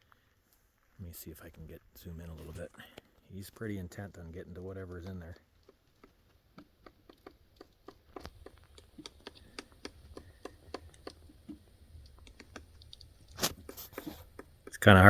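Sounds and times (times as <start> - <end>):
woodpecker tapping on a tree: 2.8 - 15.0.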